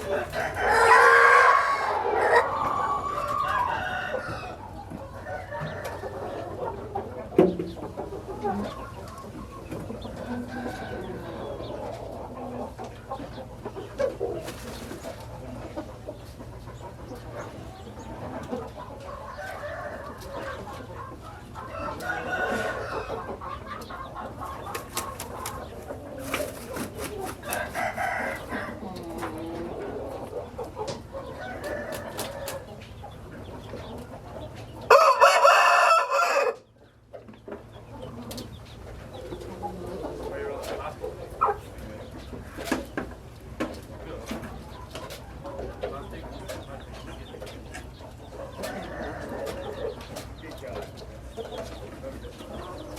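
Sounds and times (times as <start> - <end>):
roosters crowing: 0.0 - 7.3, 8.1 - 12.8, 17.4 - 33.0, 33.8 - 36.8, 48.2 - 50.2
chickens clucking: 0.0 - 52.9.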